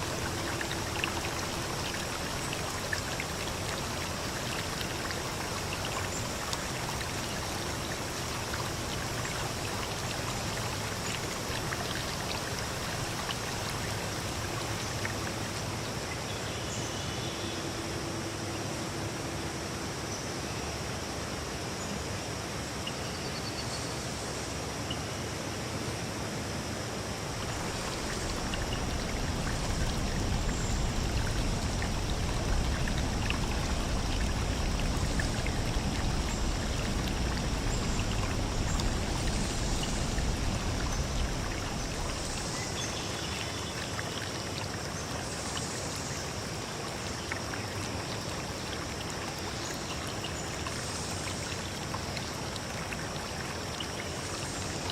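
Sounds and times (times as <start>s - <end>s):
stream trickling over rocks: 0.0s - 54.9s.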